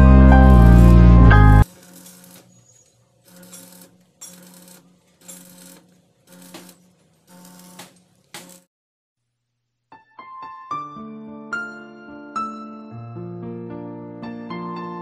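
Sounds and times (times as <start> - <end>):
background music: 0.0 - 1.7, 9.9 - 15.0
electric tool humming in bursts: 0.1 - 8.7.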